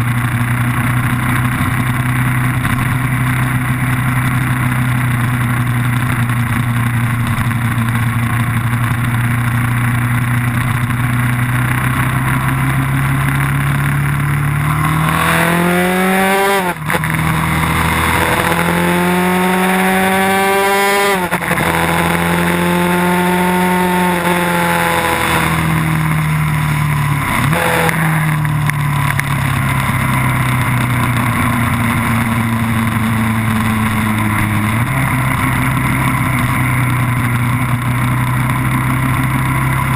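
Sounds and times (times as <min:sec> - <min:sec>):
race car engine revving: 0:12.8 - 0:29.3.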